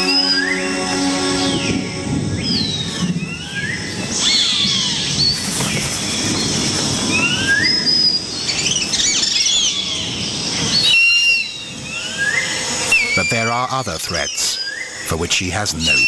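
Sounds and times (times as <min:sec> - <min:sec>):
bird whistles and chirps: 0:07.2 - 0:13.4.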